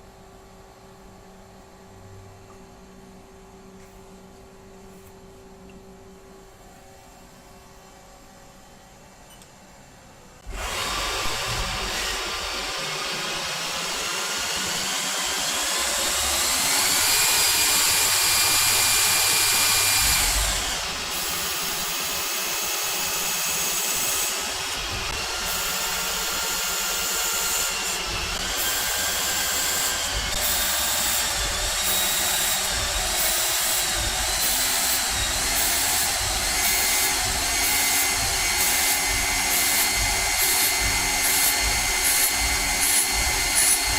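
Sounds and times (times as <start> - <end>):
lathe machine whine: 10.4 - 43.9.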